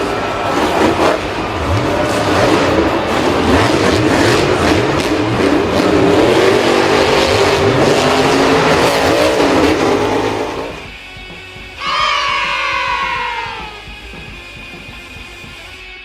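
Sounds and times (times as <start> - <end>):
engine revving hard: 0.0 - 10.9.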